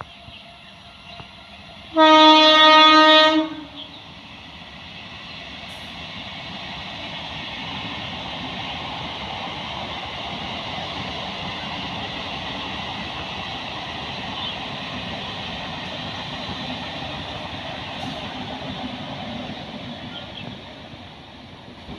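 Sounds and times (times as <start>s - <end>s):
approaching train running noise: 0.0s - 21.9s
train air horn blast: 1.9s - 3.9s.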